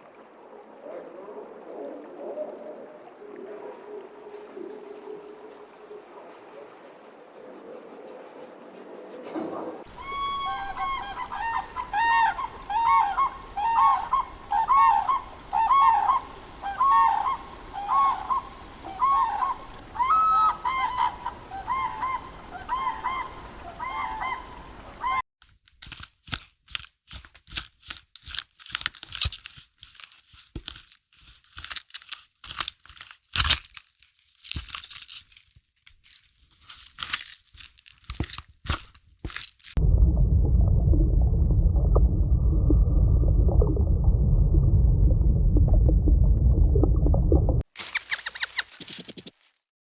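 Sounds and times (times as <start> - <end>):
birds calling: 9.9 - 25.2, 47.8 - 49.1
sharp clicks and crackles: 25.4 - 39.8.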